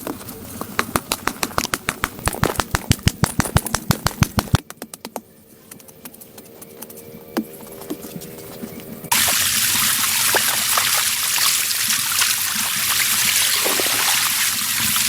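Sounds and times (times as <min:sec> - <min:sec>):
fast sharp knocks: 0:00.6 - 0:05.3.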